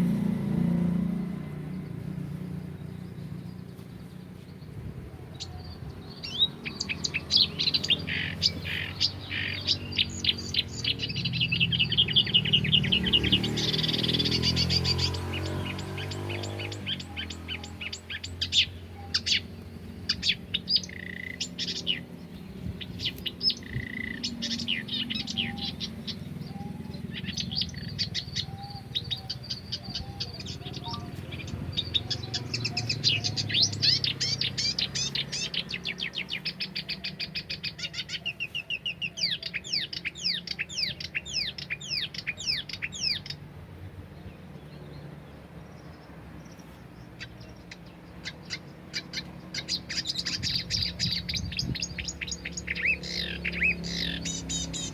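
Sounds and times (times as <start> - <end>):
songbirds singing and chirping: 0.0 - 54.9.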